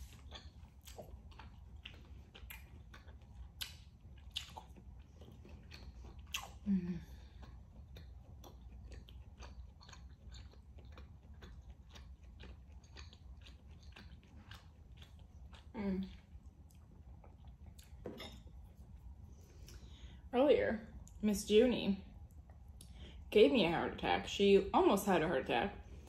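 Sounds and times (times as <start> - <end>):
wet chewing mouth clicks: 0.0 - 18.3.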